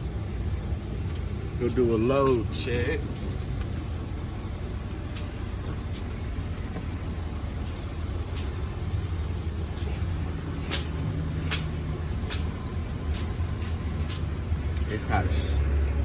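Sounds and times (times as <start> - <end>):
low hum rising: 0.0 - 16.0
low rumble of vehicle engines: 0.0 - 16.0.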